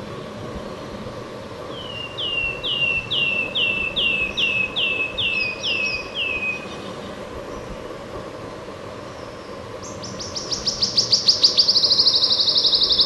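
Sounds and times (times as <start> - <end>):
steady background noise: 0.0 - 13.0
warbler singing whistled notes: 1.7 - 7.8, 9.1 - 13.0.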